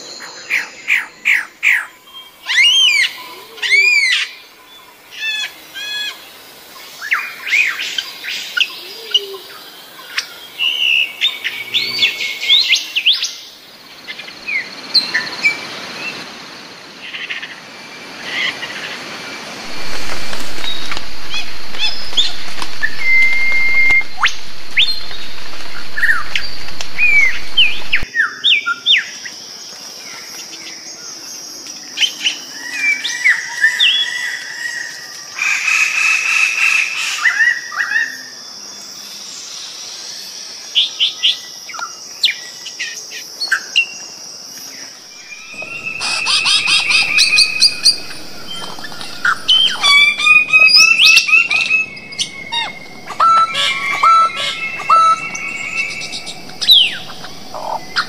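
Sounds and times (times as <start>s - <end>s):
forest birds calling: 0.0s - 16.2s, 16.9s - 58.0s
high-pitched drone: 19.6s - 28.1s, 45.2s - 58.0s
rapid repeated bird calls: 45.1s - 58.0s.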